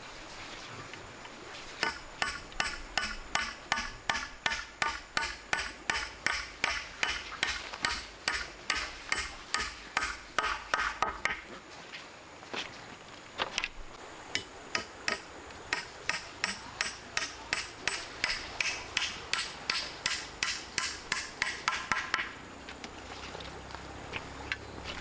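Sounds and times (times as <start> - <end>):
tool striking with ring: 1.8 - 11.4, 14.3 - 22.4.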